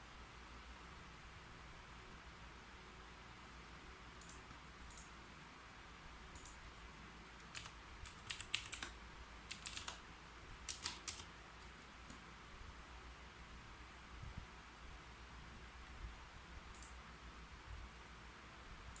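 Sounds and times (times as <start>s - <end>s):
faint steady hiss: 0.0s - 19.0s
typing on keyboard: 7.4s - 10.0s, 10.7s - 11.3s.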